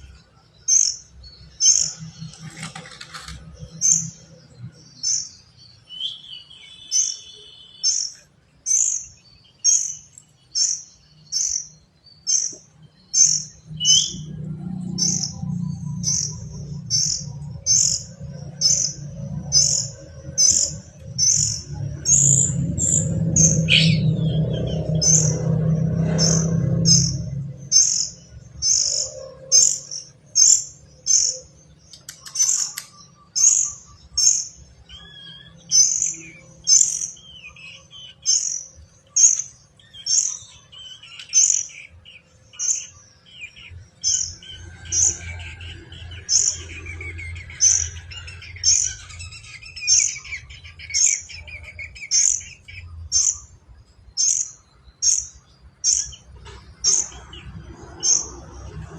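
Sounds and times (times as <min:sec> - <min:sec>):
bird chirping and warbling: 0:00.0 - 0:58.9
low rumble: 0:13.5 - 0:30.0.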